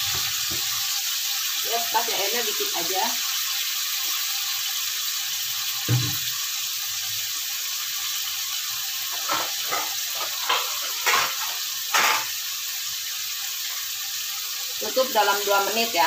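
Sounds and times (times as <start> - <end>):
vegetables sizzling in a wok: 0.0 - 16.0
low thump: 5.9 - 6.2.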